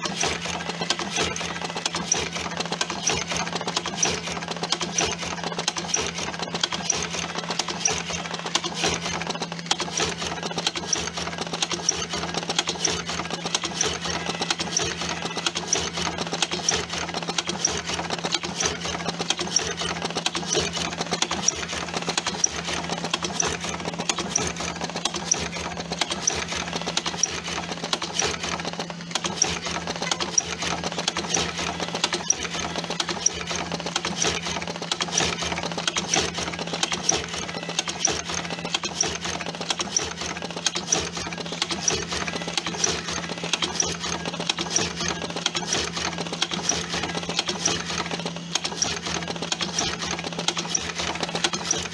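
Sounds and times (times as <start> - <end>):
rapid mechanical clicking: 0.0 - 51.9.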